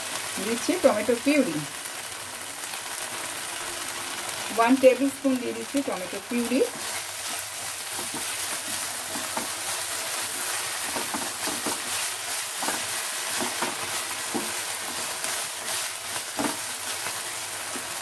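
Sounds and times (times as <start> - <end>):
paste sizzling in hot oil: 0.0 - 18.0
spatula stirring in a pan: 6.3 - 18.0.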